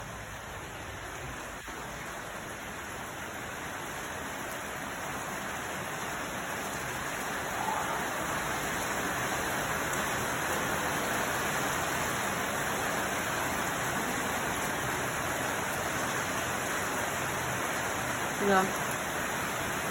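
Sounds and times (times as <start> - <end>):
falling water rushing: 0.0 - 19.9.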